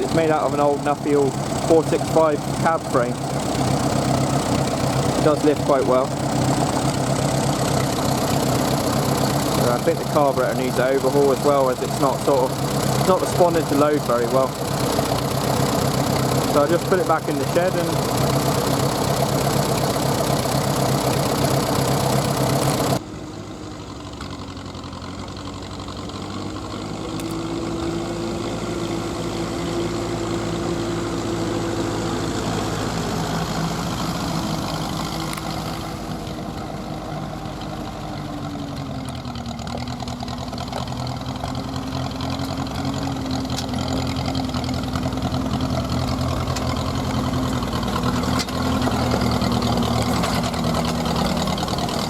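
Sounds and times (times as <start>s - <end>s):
tractor engine running: 0.0s - 52.0s.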